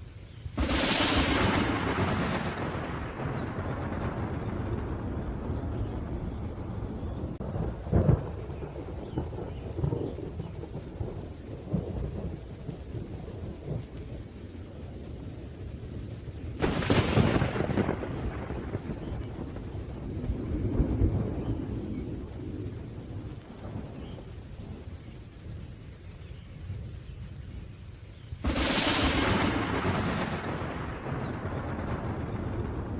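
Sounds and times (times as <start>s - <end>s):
steady rain: 0.0s - 32.9s
sharp thunderclap: 0.6s - 13.8s, 16.6s - 24.3s, 28.4s - 32.9s
rolling thunder: 0.6s - 25.8s, 28.4s - 32.9s.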